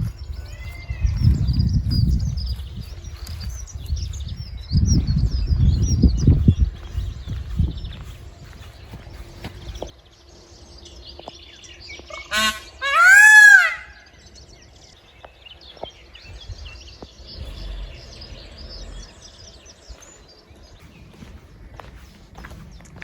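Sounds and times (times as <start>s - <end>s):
small birds chirping: 0.0s - 23.0s
peacock calling: 12.1s - 14.4s.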